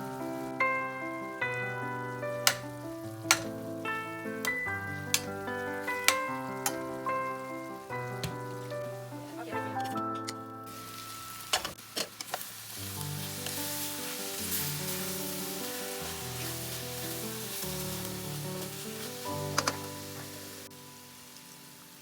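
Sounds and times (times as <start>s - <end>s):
food sizzling in a pan: 0.0s - 9.8s, 10.4s - 22.0s
utensil clicking against pan: 2.4s - 3.5s, 6.0s - 6.8s, 19.5s - 19.9s.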